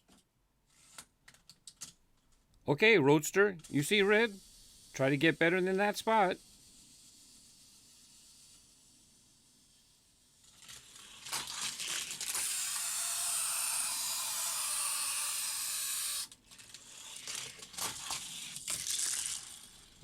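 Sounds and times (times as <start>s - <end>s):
toy car clicks and clatters: 0.1s - 2.0s, 9.7s - 20.0s
toy car rolling on plastic track: 0.1s - 2.0s, 3.6s - 20.0s.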